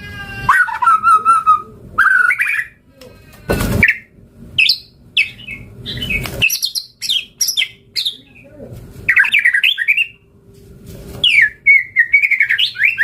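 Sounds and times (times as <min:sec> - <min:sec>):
harsh rasping bird call: 0:00.0 - 0:07.8
bird whistled song: 0:00.5 - 0:02.8, 0:03.8 - 0:08.2, 0:09.1 - 0:10.2, 0:11.2 - 0:13.0.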